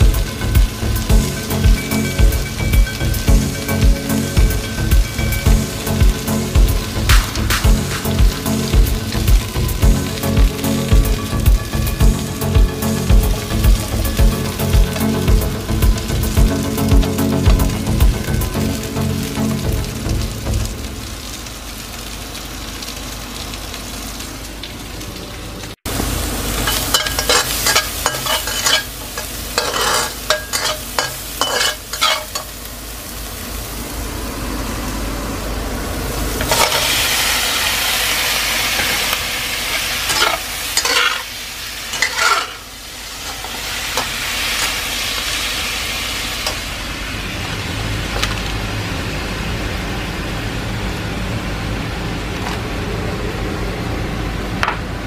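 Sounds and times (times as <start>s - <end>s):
vegetables frying in oil: 0.0s - 55.0s
spatula scraping against pan: 26.7s - 32.5s, 40.1s - 41.3s, 41.9s - 42.6s.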